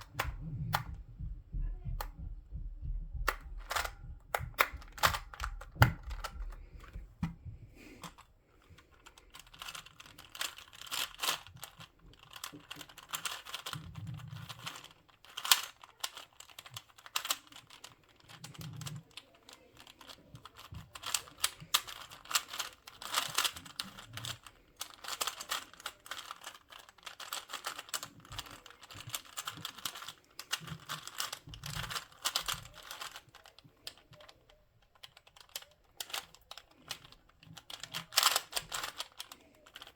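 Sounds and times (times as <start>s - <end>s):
plastic puzzle clicking: 0.0s - 1.0s, 3.3s - 39.9s
soft handling thumps: 0.0s - 8.2s.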